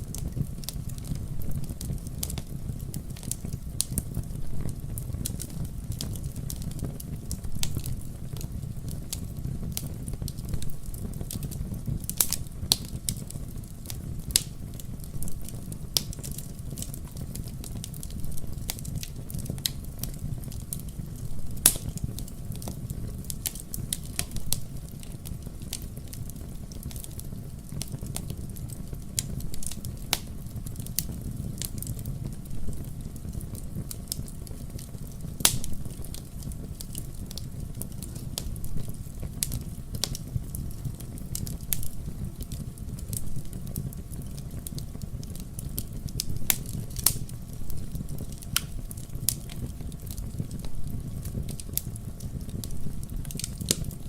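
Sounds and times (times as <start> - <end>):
fire crackling and popping: 0.0 - 54.0
low fire rumble: 0.0 - 54.0.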